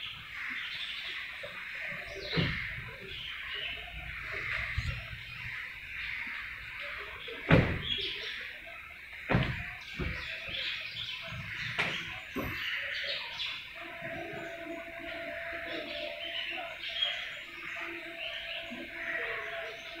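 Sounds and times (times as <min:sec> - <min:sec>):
birds chirping: 0:00.0 - 0:20.0
sharp knocks: 0:09.3 - 0:10.2.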